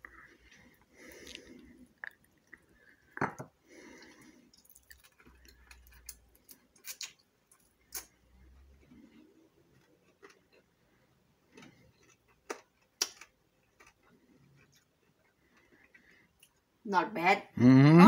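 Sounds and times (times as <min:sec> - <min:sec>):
person chewing crispy pork: 0:04.0 - 0:10.8, 0:11.5 - 0:16.6.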